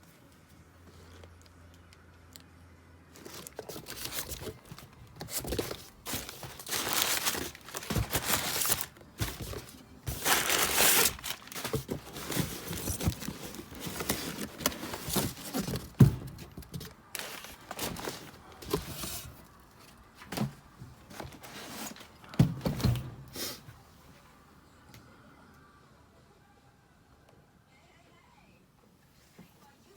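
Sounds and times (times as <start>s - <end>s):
wrapping crinkling: 3.1s - 20.0s.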